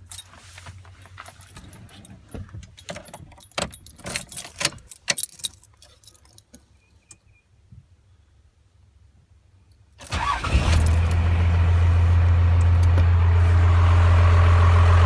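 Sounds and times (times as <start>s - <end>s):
keys jangling and clinking: 1.0s - 6.7s.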